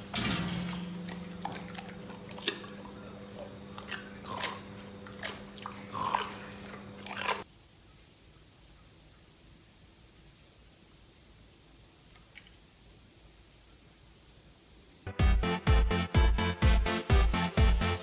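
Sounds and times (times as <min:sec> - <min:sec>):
steady low hum: 0:00.0 - 0:07.5
crunchy biting and chewing: 0:00.1 - 0:07.4.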